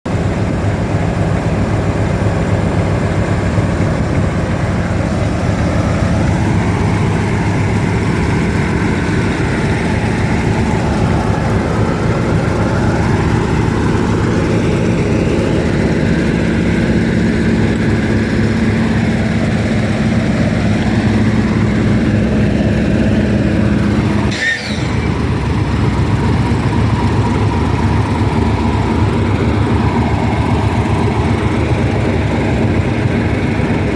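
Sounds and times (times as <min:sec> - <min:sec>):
diesel locomotive engine idling: 0:00.0 - 0:33.9.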